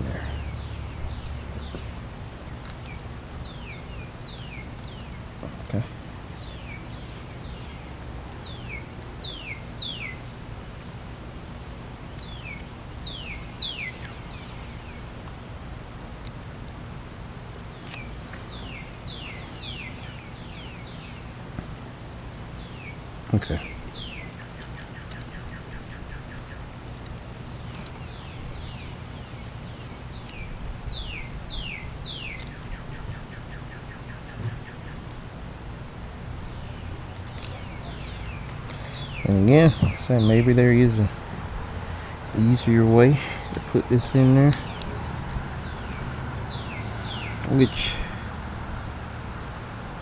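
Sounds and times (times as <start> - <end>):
bird calling down-slurred notes: 22.6 - 26.7, 27.5 - 35.1, 36.4 - 41.2, 41.9 - 48.4.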